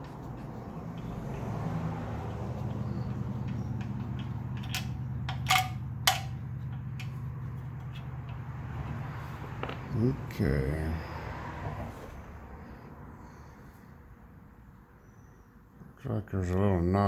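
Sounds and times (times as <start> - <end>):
sharp metallic clicks: 0.9 - 8.4.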